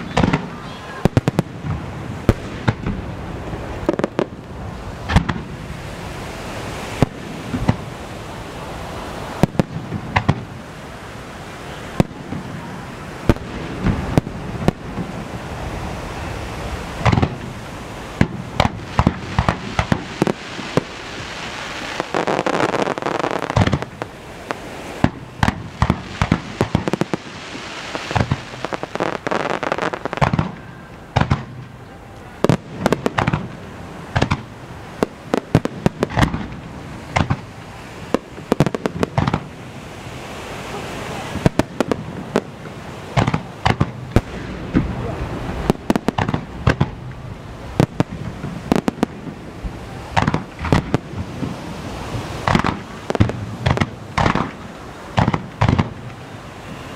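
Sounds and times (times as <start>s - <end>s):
crackling firework pops: 0.0s - 3.1s, 3.8s - 5.5s, 7.0s - 7.9s, 9.4s - 10.5s, 17.0s - 17.5s, 18.2s - 31.8s, 32.4s - 39.5s, 41.4s - 45.0s, 45.6s - 47.2s, 47.8s - 51.6s, 52.2s - 56.2s
fireworks booming: 0.0s - 56.9s
continuous rumble: 40.7s - 56.9s.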